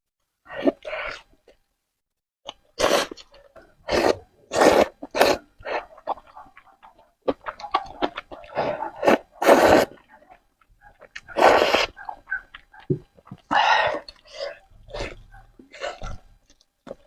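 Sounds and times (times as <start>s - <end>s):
loud eating mouth sounds: 2.5s - 10.1s, 11.0s - 17.0s
chewing clicks: 5.7s - 9.2s, 9.9s - 14.3s.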